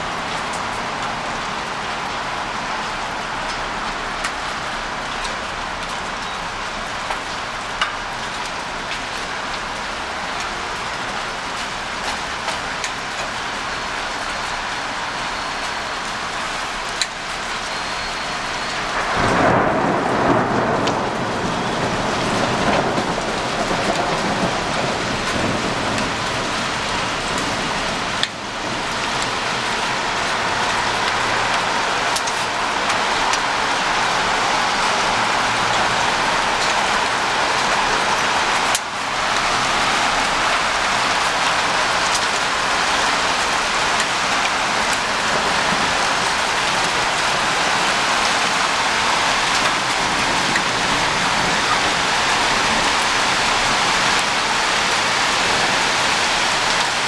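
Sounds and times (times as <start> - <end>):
heavy rain falling: 0.0 - 57.0
thunder clap rumbling: 18.4 - 56.8.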